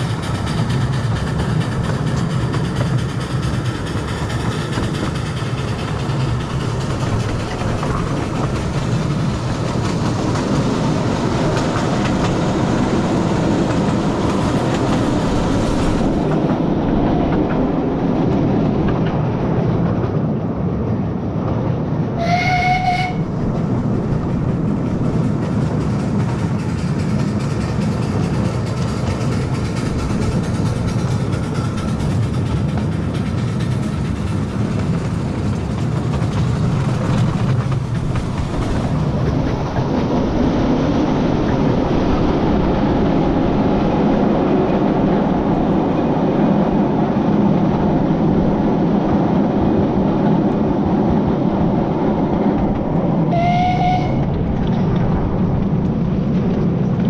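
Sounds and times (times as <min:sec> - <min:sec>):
train rumble and wheel clatter: 0:00.0 - 0:57.0
train whistle blast: 0:22.2 - 0:23.2, 0:53.3 - 0:54.3.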